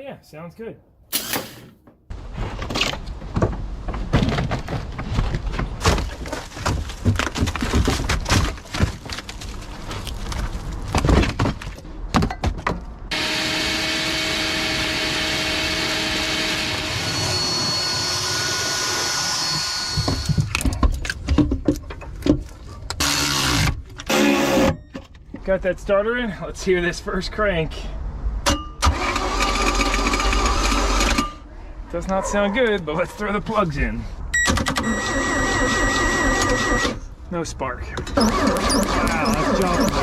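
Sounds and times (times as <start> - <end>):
machine whir with hum: 13.1 - 20.4.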